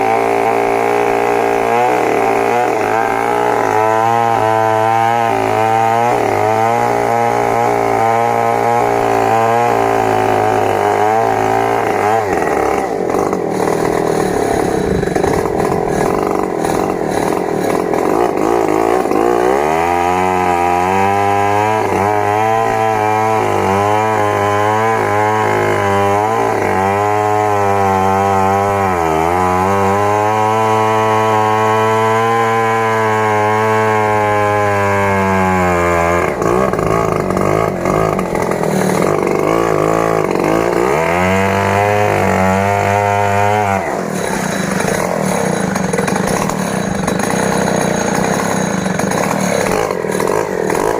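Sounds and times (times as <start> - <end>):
chainsaw running hard: 0.0 - 50.9.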